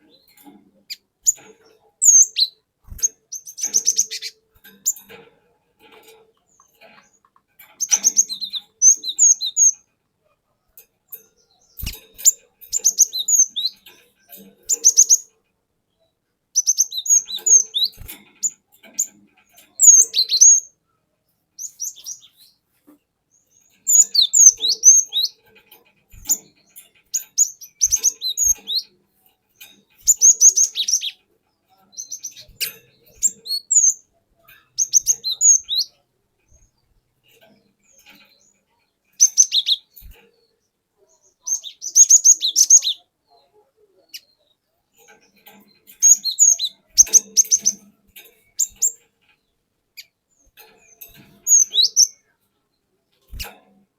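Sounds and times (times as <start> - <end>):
bird singing chirps and whistles: 2.0 - 4.4, 7.8 - 9.8, 12.7 - 13.8, 16.6 - 18.0, 30.1 - 31.2, 39.2 - 40.0, 41.5 - 43.0, 46.0 - 47.8, 51.5 - 52.2.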